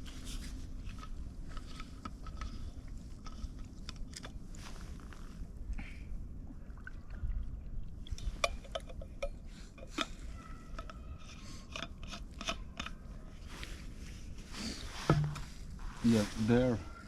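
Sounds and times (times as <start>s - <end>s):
light metallic clinks and taps: 8.4s - 10.1s.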